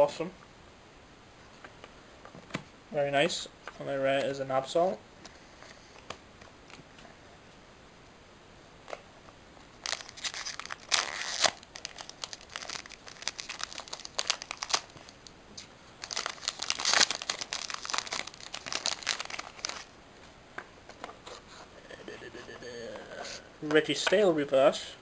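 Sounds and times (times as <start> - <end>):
foil wrapper crinkling and tearing: 9.8 - 15.3, 16.0 - 19.9.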